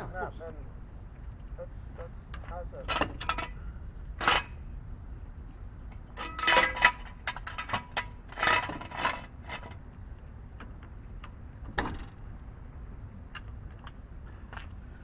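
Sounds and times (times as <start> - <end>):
metal tools clinking: 6.2 - 9.8.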